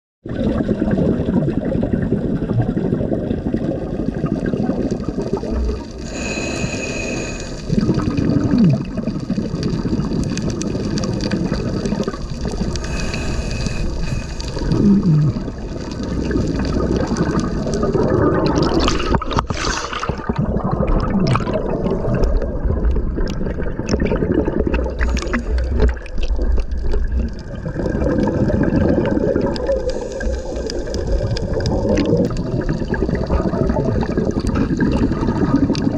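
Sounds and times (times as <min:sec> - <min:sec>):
water churning and gurgling: 0:00.2 - 0:35.9
sharp crackling: 0:04.8 - 0:20.4.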